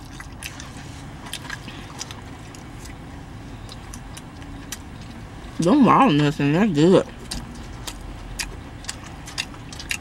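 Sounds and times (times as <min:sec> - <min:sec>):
close-up chewing: 0:00.0 - 0:05.3, 0:07.0 - 0:10.0
steady low hum: 0:00.0 - 0:10.0
wet mouth clicks and smacks: 0:07.2 - 0:10.0.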